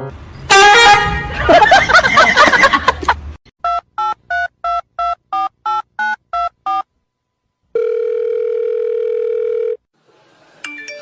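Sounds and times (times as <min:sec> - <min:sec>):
telephone busy tone: 0:07.8 - 0:09.8.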